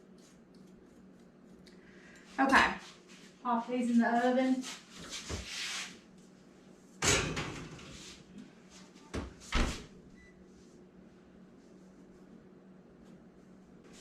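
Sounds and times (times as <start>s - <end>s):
oven door thud: 7.0s - 8.0s.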